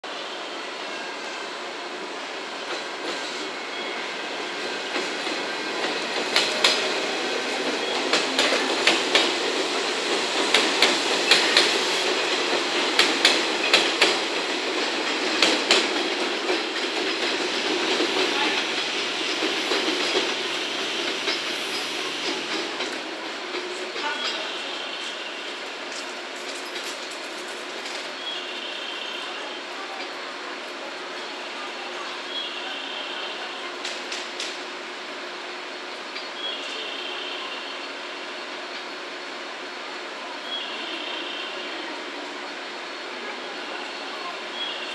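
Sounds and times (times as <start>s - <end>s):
train running rumble: 2.3s - 28.6s
train wheels knocking over rail joints: 7.9s - 20.4s.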